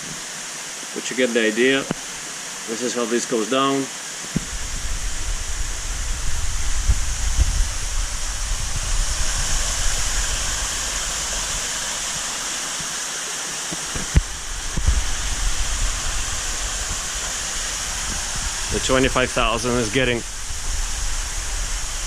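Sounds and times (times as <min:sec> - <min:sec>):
running water rushing: 0:00.0 - 0:22.0
dull low bumps: 0:04.3 - 0:11.6, 0:14.0 - 0:18.8.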